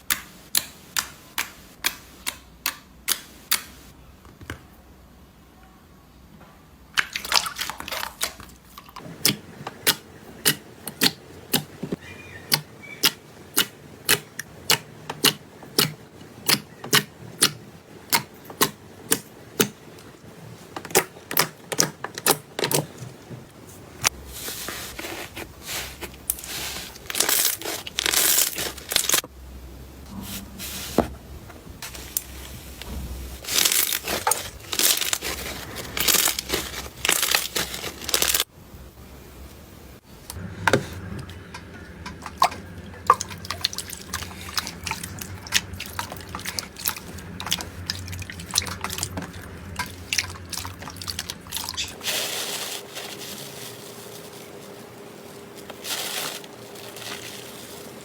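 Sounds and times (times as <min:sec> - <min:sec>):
slime popping and crackling: 0:33.4 - 0:38.5.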